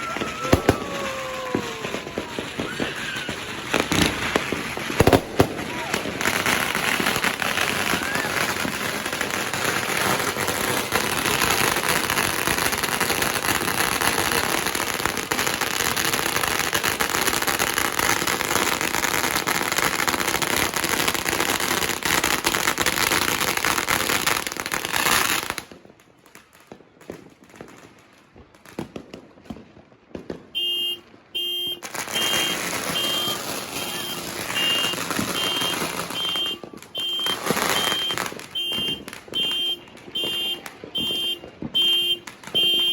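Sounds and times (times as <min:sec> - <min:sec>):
firecrackers crackling: 0:00.0 - 0:42.9
repeating electronic beep: 0:33.9 - 0:39.0.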